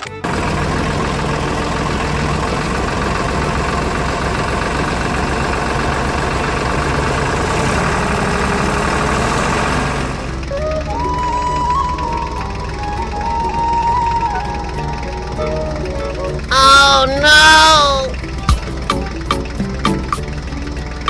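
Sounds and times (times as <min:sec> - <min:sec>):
music: 0:00.0 - 0:00.4, 0:10.4 - 0:21.0
tractor engine idling: 0:00.0 - 0:21.0.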